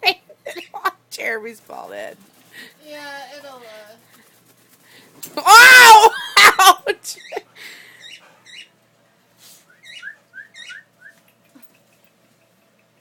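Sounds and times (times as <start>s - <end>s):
cockatiel chirping: 9.8s - 11.1s.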